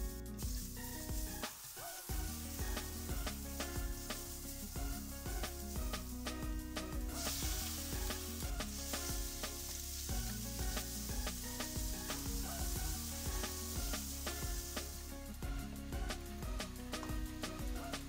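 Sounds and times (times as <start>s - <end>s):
background music with beat: 0.0s - 18.0s
meat sizzling in oil: 0.4s - 6.2s, 7.1s - 15.1s.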